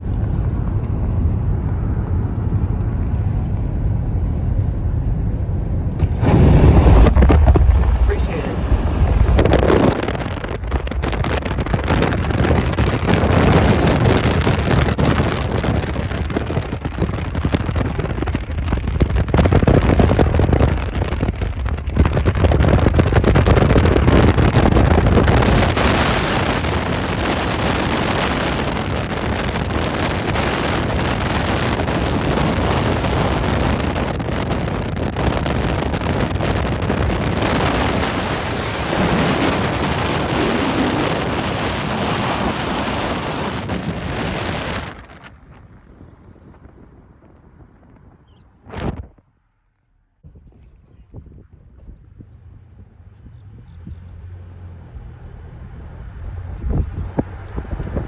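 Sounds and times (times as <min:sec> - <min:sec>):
wind buffeting microphone: 0:00.0 - 0:49.4, 0:50.2 - 0:58.0
freight train rumbling: 0:04.2 - 0:14.1.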